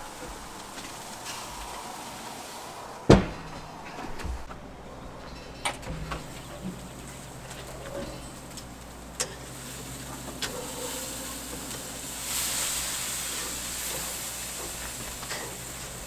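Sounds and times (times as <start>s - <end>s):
grill lid banging shut: 3.1s - 4.0s.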